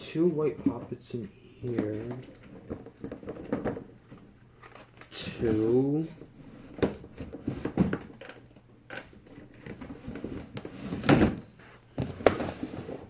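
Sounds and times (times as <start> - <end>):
rustling scrape: 9.8 - 13.0.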